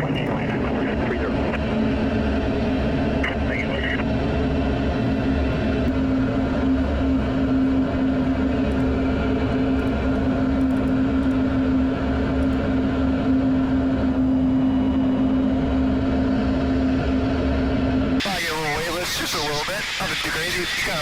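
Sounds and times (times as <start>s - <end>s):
jet cockpit engine rumble: 0.0s - 21.0s.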